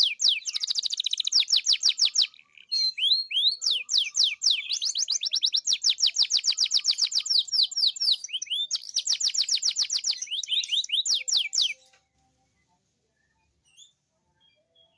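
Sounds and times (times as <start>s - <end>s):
canary singing trills: 0.0s - 11.9s.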